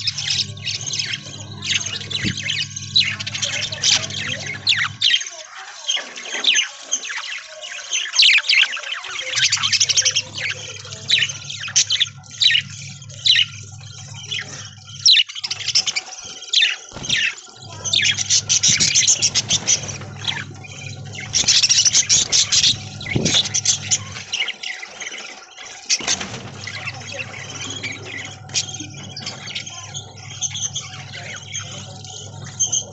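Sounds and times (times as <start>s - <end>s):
steady low hum: 0.0s - 5.2s, 9.5s - 16.0s, 16.9s - 24.5s, 26.0s - 32.9s
budgerigars chattering: 0.0s - 32.9s.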